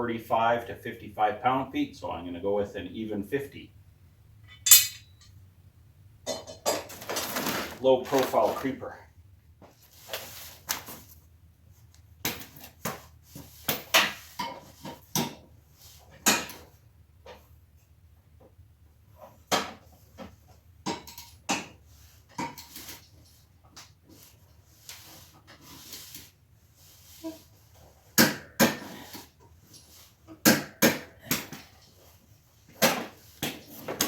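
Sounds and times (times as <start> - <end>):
metallic clanks of hand tools: 4.5 - 5.3.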